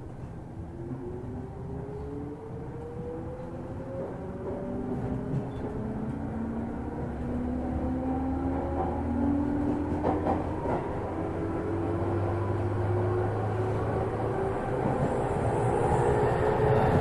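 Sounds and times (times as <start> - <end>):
wheel and rail rumble: 8.5 - 17.0
electric train motor whine: 11.2 - 17.0.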